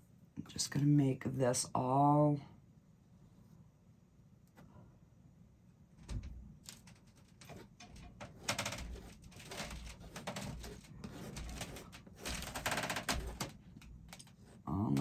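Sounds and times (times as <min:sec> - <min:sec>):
paintbrush tapping and scraping canvas: 0:07.0 - 0:15.0.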